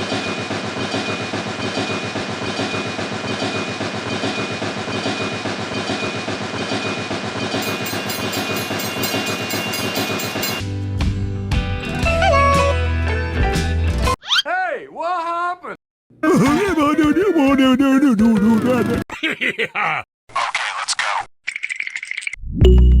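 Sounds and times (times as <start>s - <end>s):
machine clatter: 0.0s - 10.6s.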